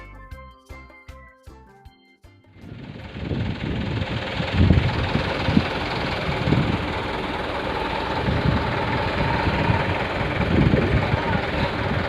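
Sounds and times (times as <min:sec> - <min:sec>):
truck engine rumbling: 0:02.5 - 0:12.0.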